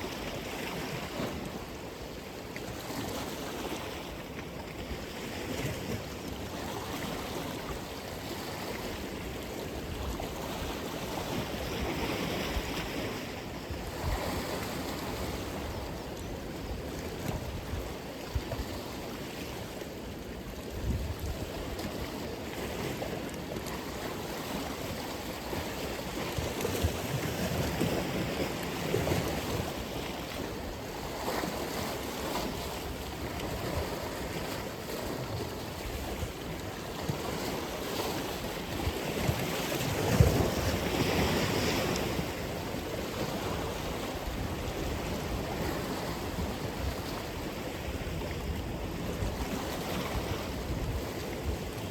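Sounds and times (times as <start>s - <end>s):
ocean waves breaking on shore: 0.0s - 51.9s
wind buffeting microphone: 20.6s - 22.0s.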